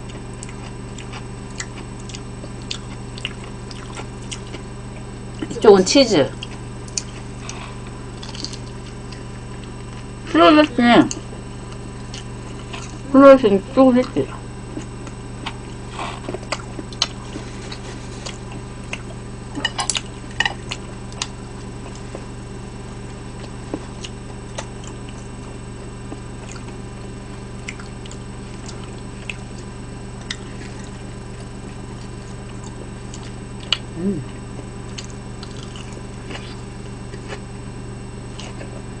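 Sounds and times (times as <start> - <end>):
person chewing food: 0.0 - 5.5, 6.4 - 10.2, 14.3 - 22.4, 23.0 - 37.4, 38.3 - 39.0
low hum: 0.0 - 39.0.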